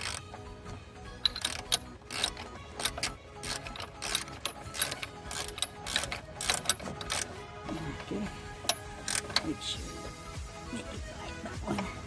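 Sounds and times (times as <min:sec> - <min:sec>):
socket ratchet clicking: 0:00.0 - 0:07.4, 0:08.6 - 0:09.6
background music: 0:00.0 - 0:12.0.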